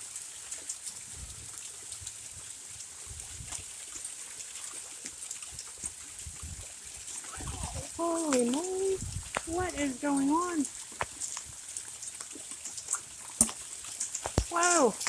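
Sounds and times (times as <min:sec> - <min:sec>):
running water and rain: 0:00.0 - 0:15.0
hailstones striking: 0:07.0 - 0:15.0.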